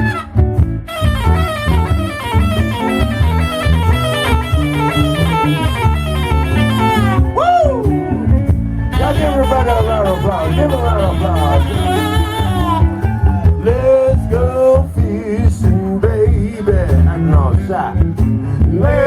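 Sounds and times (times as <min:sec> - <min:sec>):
electric guitar solo: 0:00.0 - 0:14.1
bass guitar: 0:00.0 - 0:19.0
drums: 0:00.0 - 0:19.0.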